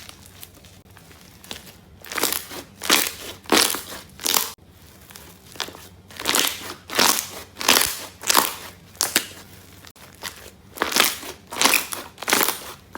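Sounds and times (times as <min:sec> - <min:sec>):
slime squeezing and popping: 0:01.4 - 0:09.4, 0:10.2 - 0:12.8.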